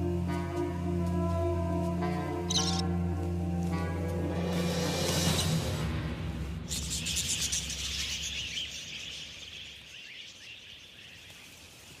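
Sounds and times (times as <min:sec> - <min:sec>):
birds chirping: 0:02.4 - 0:02.9, 0:06.6 - 0:12.0.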